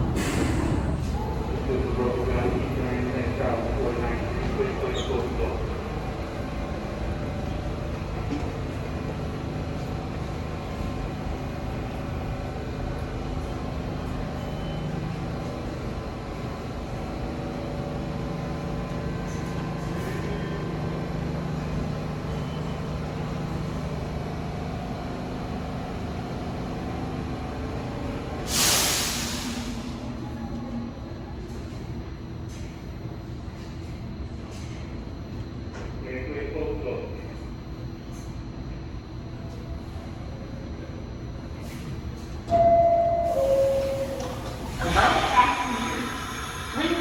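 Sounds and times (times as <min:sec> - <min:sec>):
air brakes hissing: 0:00.0 - 0:01.3, 0:28.4 - 0:30.1, 0:43.2 - 0:47.0
subway train rumbling: 0:00.0 - 0:47.0.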